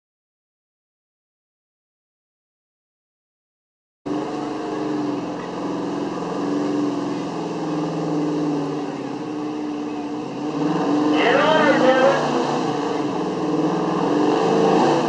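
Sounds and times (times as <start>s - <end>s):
truck engine running at low revs: 4.1s - 15.0s.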